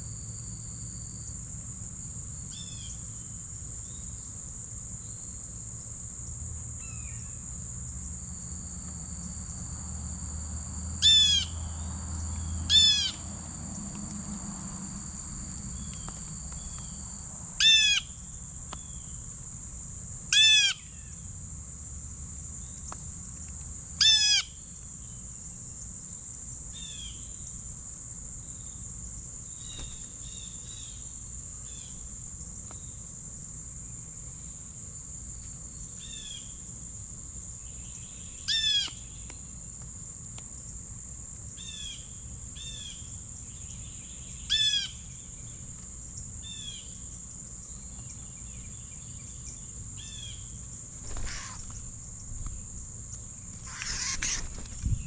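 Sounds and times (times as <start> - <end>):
bird calling: 29.7 - 30.4, 51.0 - 52.7, 53.6 - 55.0.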